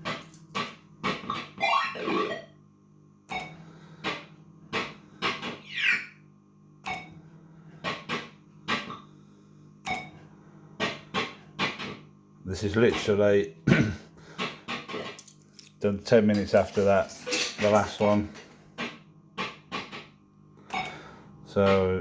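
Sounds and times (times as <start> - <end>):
steady low hum: 0.0 - 22.0
distorted electronic blips: 1.3 - 2.5.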